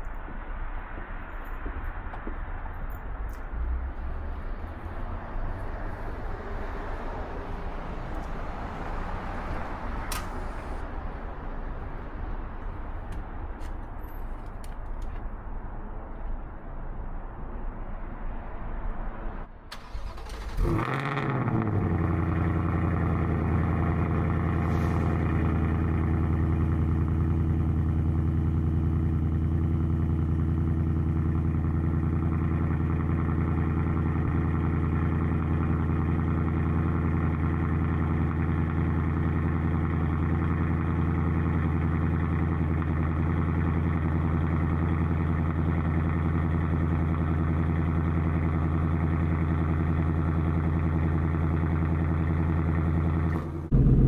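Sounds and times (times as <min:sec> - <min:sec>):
car engine idling: 0:19.7 - 0:54.0.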